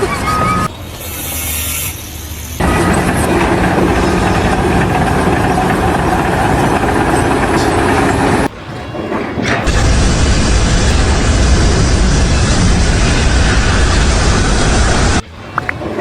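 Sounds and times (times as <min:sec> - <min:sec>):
heavy machinery engine noise: 0:01.9 - 0:08.6, 0:09.3 - 0:15.2.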